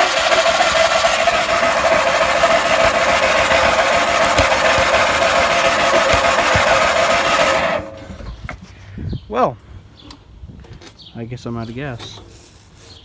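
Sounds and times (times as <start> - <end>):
garden tractor engine running: 0.0 - 8.6.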